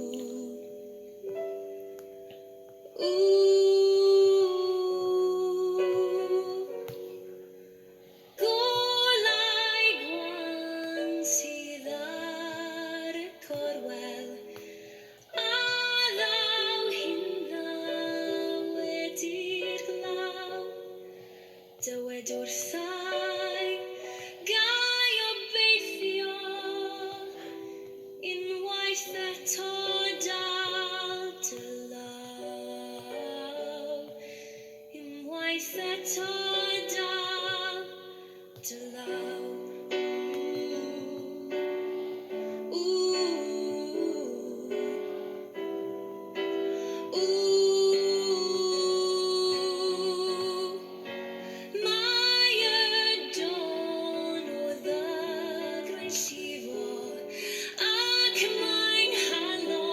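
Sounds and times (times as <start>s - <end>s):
soft musical accompaniment: 0.0s - 59.9s
woman singing slow song: 0.0s - 59.9s.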